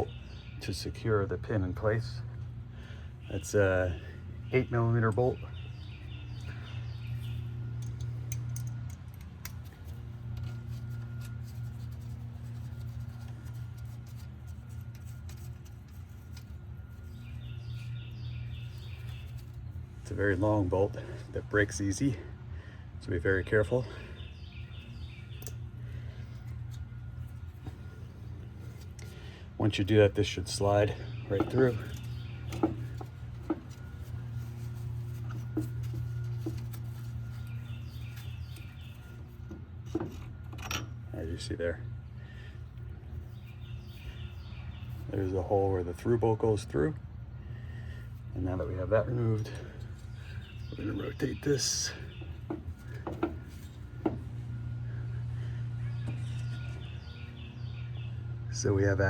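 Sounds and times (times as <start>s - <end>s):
steady low hum: 0.0s - 59.0s
bird chirping: 3.2s - 8.6s, 10.4s - 19.8s, 23.8s - 29.4s, 30.2s - 39.4s, 43.2s - 45.5s, 49.4s - 58.4s.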